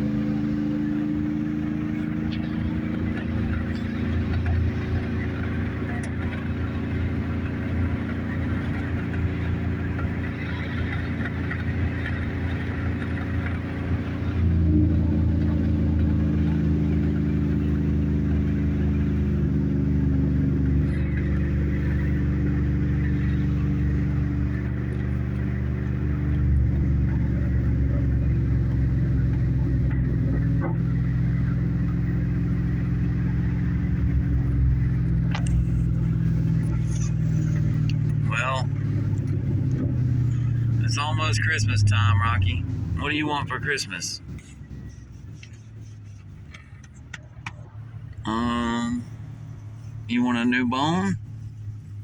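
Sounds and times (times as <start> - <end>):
engine and road noise rumble: 0.0 - 52.0.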